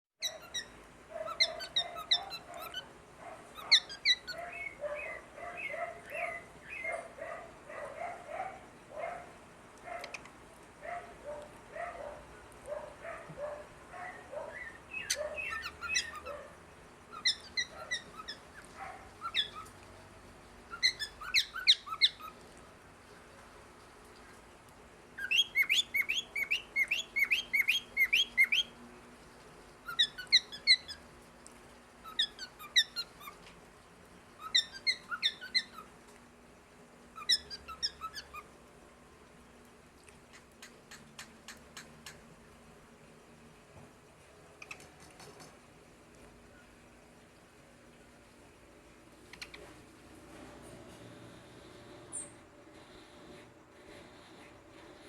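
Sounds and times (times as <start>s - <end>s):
cockatiel chirping: 0.2s - 2.8s, 3.5s - 6.9s, 14.5s - 16.3s, 17.1s - 19.7s, 20.7s - 22.4s, 25.2s - 28.7s, 29.8s - 31.0s, 32.0s - 33.4s, 34.4s - 35.9s, 37.2s - 38.5s.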